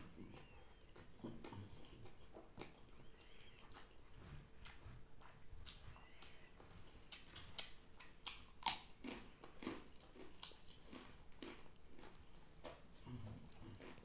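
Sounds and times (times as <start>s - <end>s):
chewing with wet mouth clicks: 0.3s - 4.0s, 7.0s - 14.0s.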